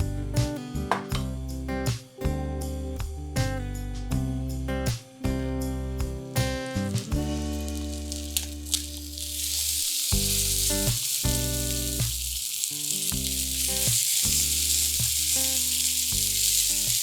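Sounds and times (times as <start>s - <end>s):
meat sizzling on a griddle: 7.1s - 17.0s.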